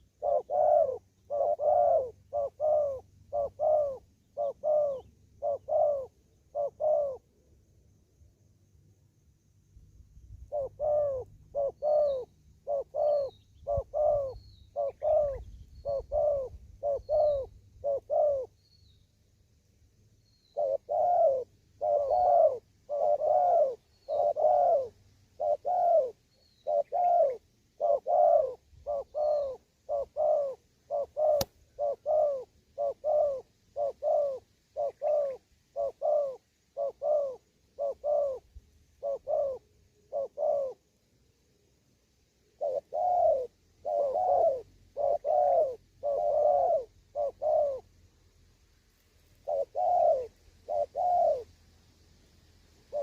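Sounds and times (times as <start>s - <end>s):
dove cooing: 0.0s - 7.4s, 10.4s - 18.6s, 20.5s - 40.9s, 42.5s - 48.0s, 49.3s - 51.6s
small bird chirping: 0.0s - 53.0s
sharp click: 31.4s - 31.6s.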